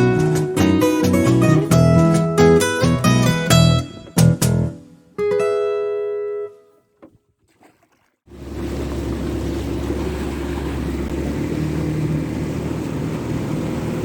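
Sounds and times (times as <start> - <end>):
motorboat engine running: 8.3 - 14.0.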